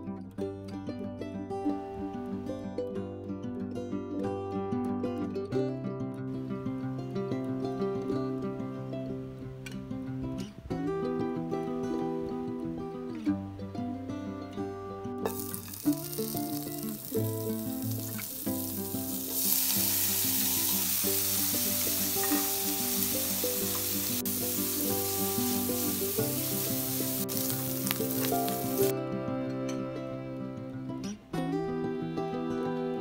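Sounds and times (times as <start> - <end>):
soft guitar music: 0.0 - 33.0
bacon sizzling in a pan: 15.3 - 28.9.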